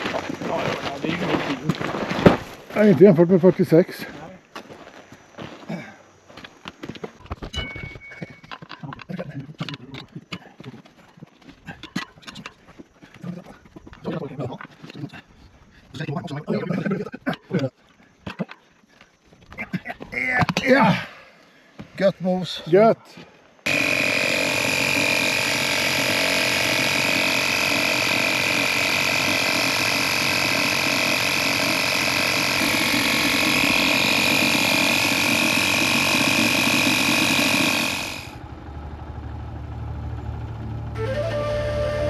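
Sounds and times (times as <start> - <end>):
motor running steadily: 23.6 - 42.0.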